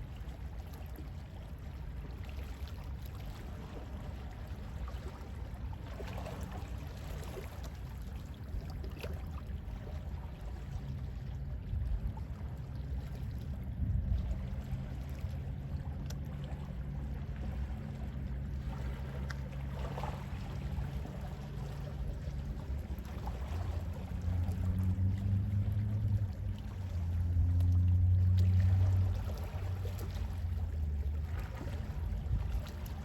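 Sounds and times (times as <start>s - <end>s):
gentle sea waves lapping: 0.0s - 33.0s
low rumble: 9.4s - 33.0s.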